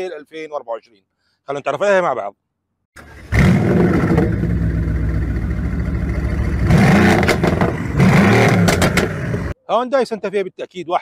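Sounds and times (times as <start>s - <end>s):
car engine revving: 3.0s - 9.6s.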